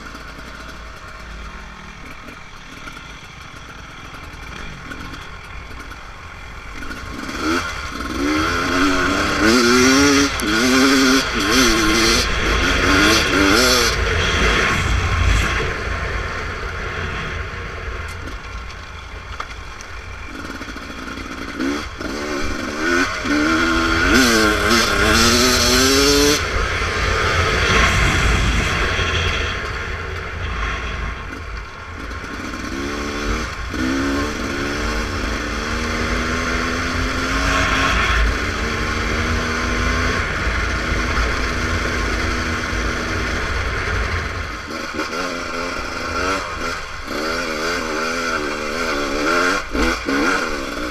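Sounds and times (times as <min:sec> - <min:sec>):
dirt bike engine revving: 0:00.0 - 0:18.4, 0:20.0 - 0:50.9
low rumble: 0:09.9 - 0:20.3, 0:23.3 - 0:44.7.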